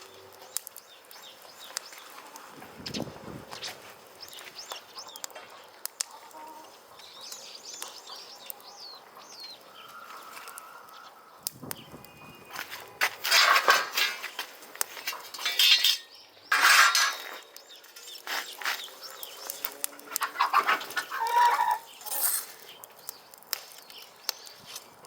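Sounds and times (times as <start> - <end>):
chickens clucking and squawking: 19.7 - 22.4.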